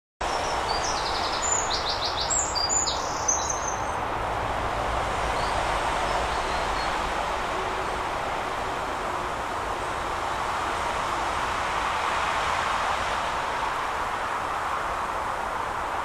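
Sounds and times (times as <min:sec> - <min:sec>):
rushing background noise: 0:00.2 - 0:16.0
small bird singing: 0:00.3 - 0:04.0.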